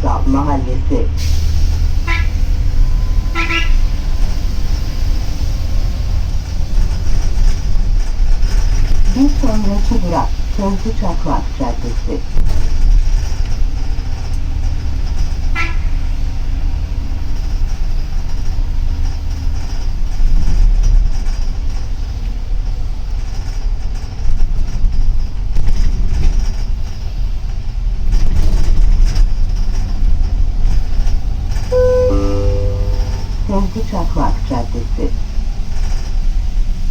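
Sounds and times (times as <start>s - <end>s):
bus engine and road rumble: 0.0s - 36.9s
brief high squeak: 31.7s - 33.5s.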